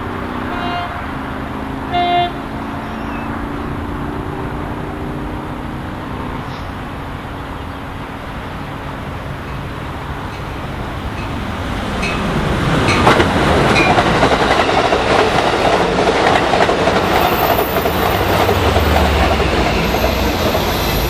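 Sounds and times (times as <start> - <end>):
distant train rumble and drone: 0.0 - 21.0
train horn blast: 0.4 - 3.2.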